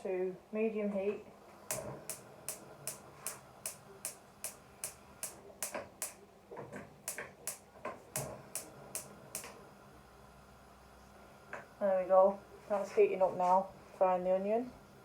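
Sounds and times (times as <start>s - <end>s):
gas hob igniter clicking: 1.7s - 6.2s, 7.1s - 9.6s.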